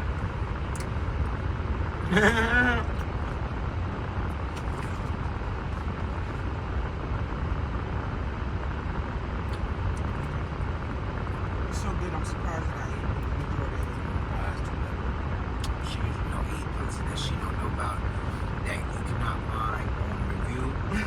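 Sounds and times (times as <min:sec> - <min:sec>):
person vocal sound: 0:02.0 - 0:03.0.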